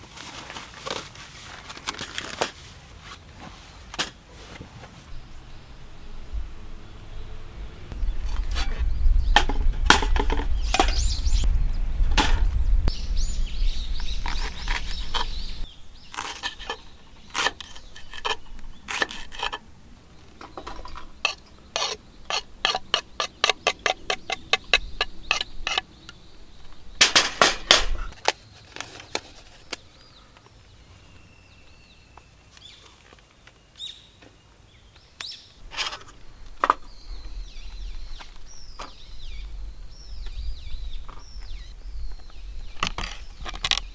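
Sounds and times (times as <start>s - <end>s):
low rumble: 5.1s - 16.0s, 35.6s - 43.4s.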